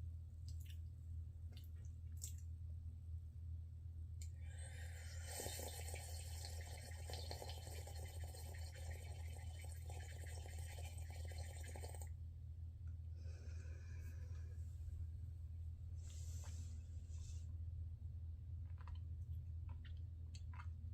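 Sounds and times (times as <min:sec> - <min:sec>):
person slurping coffee: 0:04.8 - 0:12.1.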